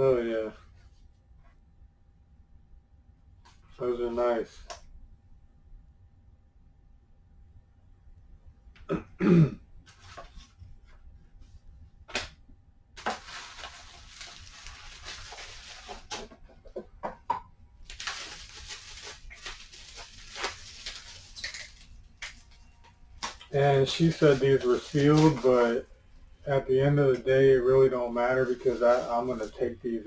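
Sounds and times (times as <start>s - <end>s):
person coughing: 8.9s - 9.6s
packaging crinkling: 13.0s - 16.4s, 17.8s - 25.8s.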